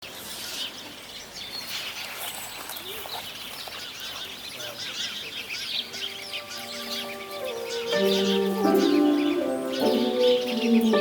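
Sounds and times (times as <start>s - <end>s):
small birds chirping and twittering: 0.0s - 11.0s
lower arching bird call: 5.9s - 11.0s.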